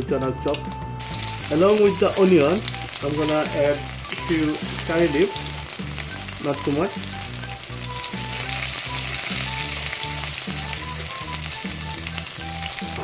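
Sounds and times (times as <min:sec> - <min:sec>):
background music with low beat: 0:00.0 - 0:13.0
onions sizzling in hot oil: 0:00.5 - 0:13.0.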